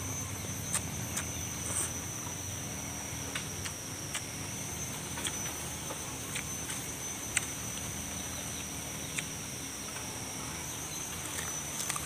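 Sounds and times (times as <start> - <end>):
insects buzzing: 0.0 - 12.0
crisp biting and chewing clicks: 0.6 - 2.0, 3.3 - 4.4, 5.1 - 5.5, 6.3 - 7.9, 8.5 - 10.1, 11.1 - 12.0.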